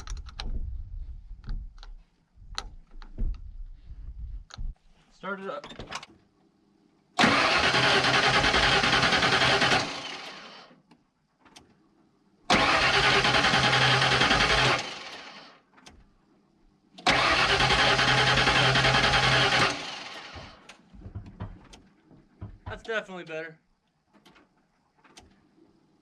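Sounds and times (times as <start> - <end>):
engine starter cranking: 7.2 - 10.7, 12.5 - 16.0, 17.0 - 21.8.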